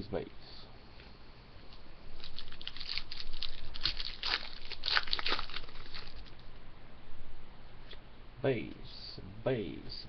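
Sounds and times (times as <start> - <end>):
wrapper tearing and crinkling: 2.2 - 6.5.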